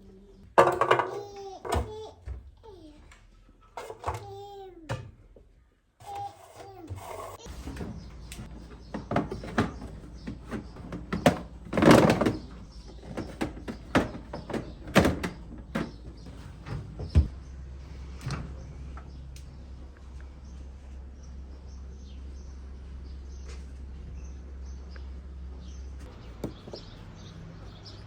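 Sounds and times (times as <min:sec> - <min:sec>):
objects knocking and clunking: 0:00.4 - 0:02.6, 0:03.7 - 0:17.4, 0:26.0 - 0:27.1.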